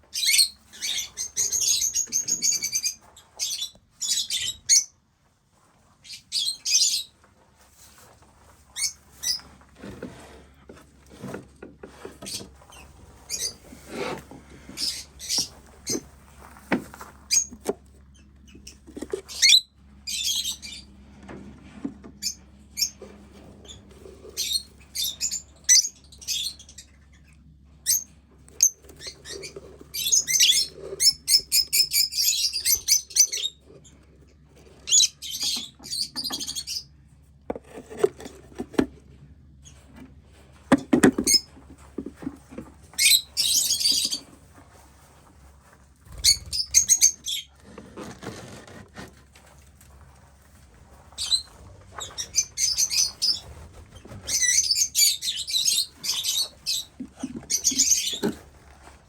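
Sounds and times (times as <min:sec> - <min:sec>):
lovebirds chirping: 0:12.3 - 0:13.7, 0:51.1 - 0:58.4.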